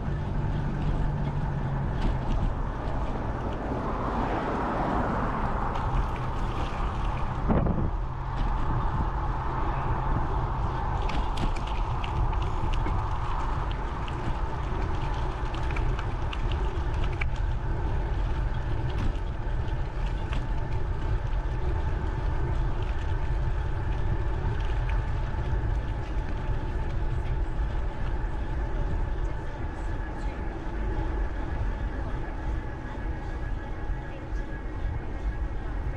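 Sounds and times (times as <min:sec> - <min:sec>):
bicycle tyre noise: 0:00.0 - 0:33.6
wind rumbling on microphone: 0:00.0 - 0:35.9.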